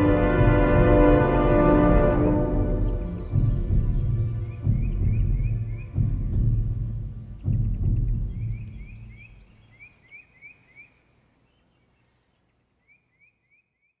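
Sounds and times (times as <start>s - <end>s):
deep drum-like music note: 0.0s - 9.5s
songbird chirping: 0.0s - 14.0s.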